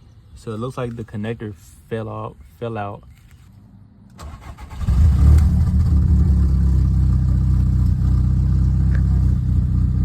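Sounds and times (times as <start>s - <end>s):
car engine idling: 5.4s - 10.0s.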